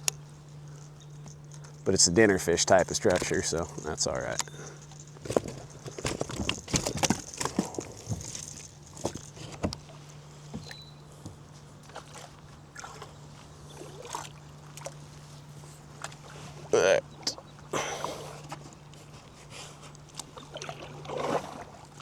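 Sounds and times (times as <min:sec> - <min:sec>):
water sloshing around a kayak: 0:00.0 - 0:22.0
knocks and taps on hull: 0:05.2 - 0:09.9.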